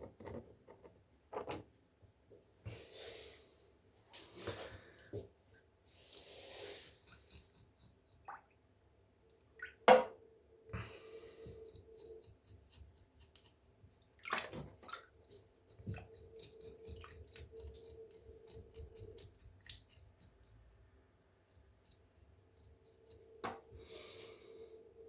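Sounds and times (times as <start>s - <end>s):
light water splashing: 14.0s - 16.2s.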